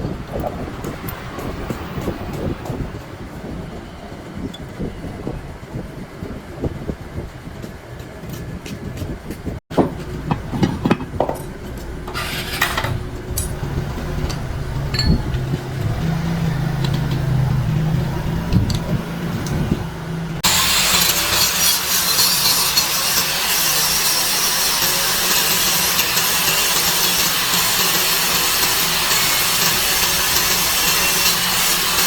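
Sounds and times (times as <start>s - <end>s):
metal knocks and clinks: 9.7s - 15.9s
rasping power tool: 20.4s - 32.0s.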